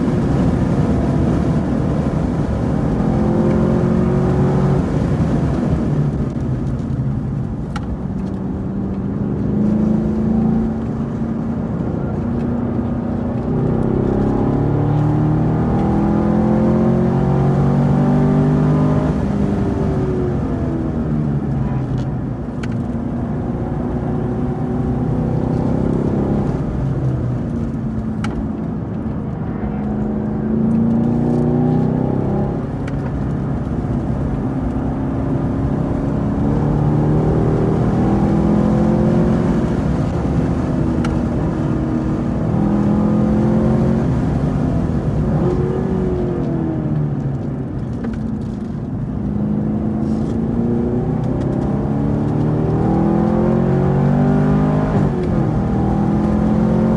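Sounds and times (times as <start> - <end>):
car engine under hard driving: 0.0 - 56.9.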